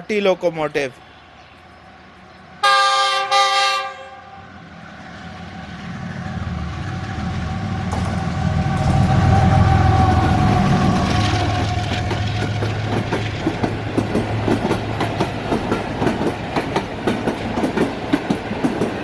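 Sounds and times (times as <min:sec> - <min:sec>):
train engine and wheels on rails: 0:00.0 - 0:19.0
locomotive horn blasts: 0:02.6 - 0:04.4.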